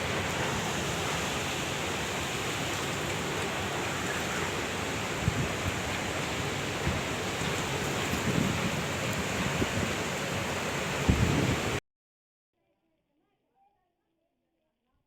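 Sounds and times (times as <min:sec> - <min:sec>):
heavy rain falling: 0:00.0 - 0:11.8
wind gusts buffeting microphone: 0:00.0 - 0:11.8.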